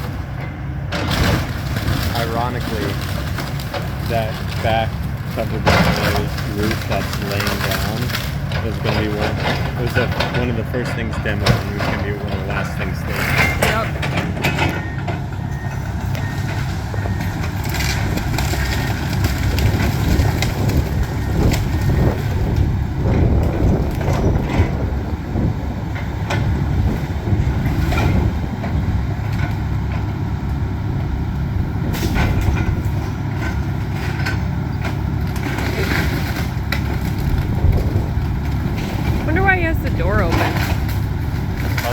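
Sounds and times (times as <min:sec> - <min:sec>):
diesel excavator engine running: 0:00.0 - 0:41.9
building material breaking: 0:01.0 - 0:14.1.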